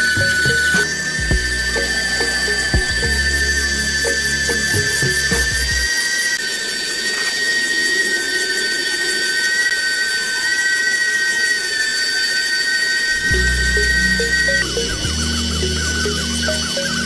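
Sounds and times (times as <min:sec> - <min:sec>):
rough mechanical hum: 0:00.0 - 0:05.9, 0:13.2 - 0:17.0
small motors whining: 0:00.0 - 0:17.0.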